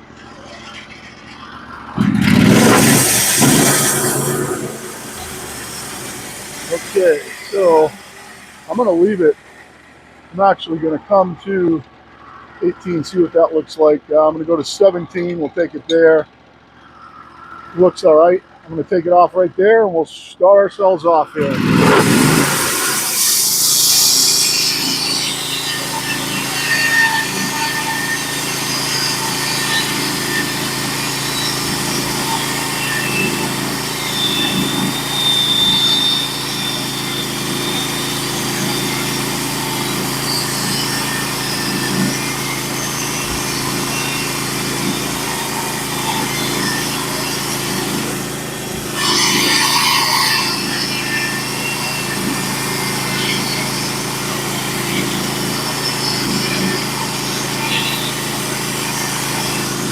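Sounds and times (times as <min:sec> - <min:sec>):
bandsaw mill engine running: 0:00.0 - 0:59.9
band blade cutting log: 0:02.0 - 0:09.4, 0:21.4 - 0:53.6.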